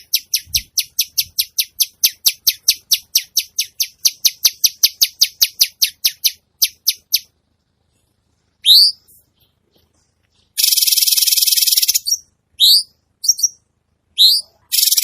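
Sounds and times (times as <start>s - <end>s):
songbird harsh high chirps: 0.0s - 7.3s, 8.6s - 9.6s, 10.4s - 13.6s, 14.2s - 15.0s.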